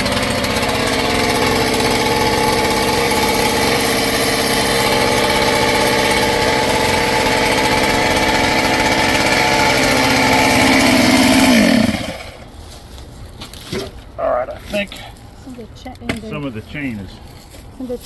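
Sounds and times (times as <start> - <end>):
chainsaw engine running: 0.0 - 12.5.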